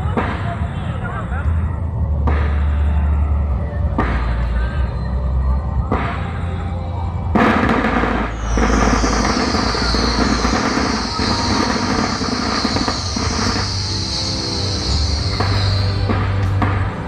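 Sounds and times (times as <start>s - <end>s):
firework bang: 7.4s - 17.0s
fireworks hissing crackle: 7.4s - 17.0s.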